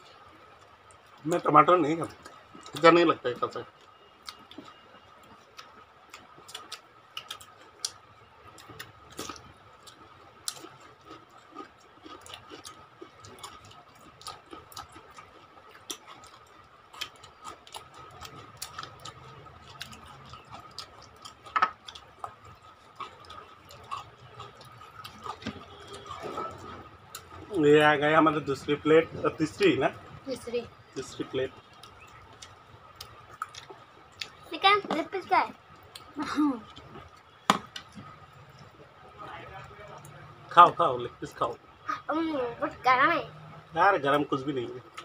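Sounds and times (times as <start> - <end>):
people chewing: 0.0 - 42.8, 44.1 - 45.0.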